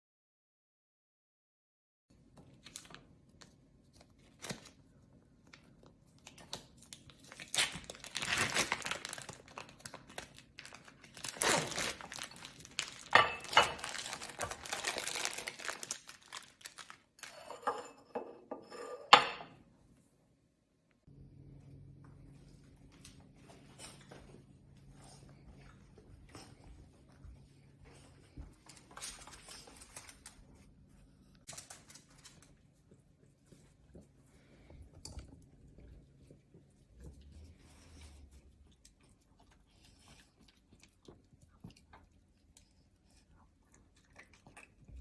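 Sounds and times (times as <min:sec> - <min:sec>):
plastic crinkling: 0:06.2 - 0:17.5
packaging tearing: 0:07.2 - 0:13.2, 0:13.8 - 0:17.3
paper rustling: 0:07.4 - 0:17.3.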